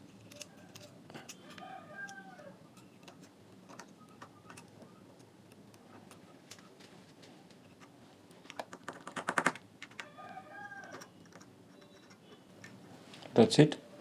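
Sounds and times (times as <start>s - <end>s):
small parts clicking and tapping: 0.1s - 6.7s, 10.8s - 12.8s.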